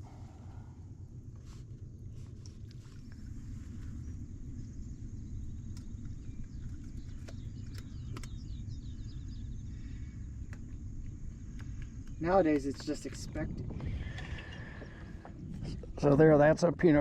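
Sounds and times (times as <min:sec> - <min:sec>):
steady low rumble: 0:00.0 - 0:17.0
bird chirping: 0:03.9 - 0:10.2.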